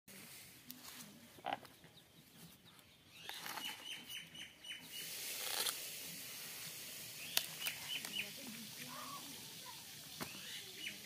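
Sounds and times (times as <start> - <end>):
bird chirping: 1.4 - 5.1, 7.2 - 9.2, 10.1 - 11.0.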